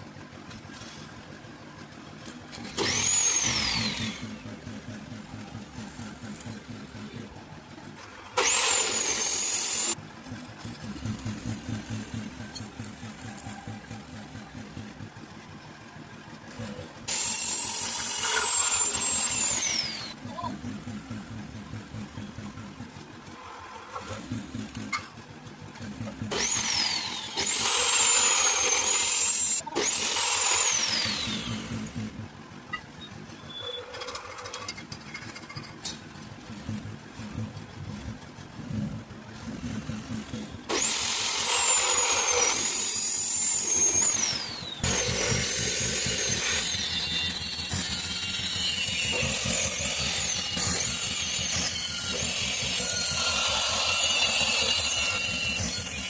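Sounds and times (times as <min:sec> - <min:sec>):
low motor hum: 0:00.0 - 0:32.8, 0:35.1 - 0:56.0
power tool whining: 0:02.2 - 0:07.4, 0:08.0 - 0:15.2, 0:16.5 - 0:25.2, 0:25.8 - 0:32.3, 0:33.0 - 0:56.0.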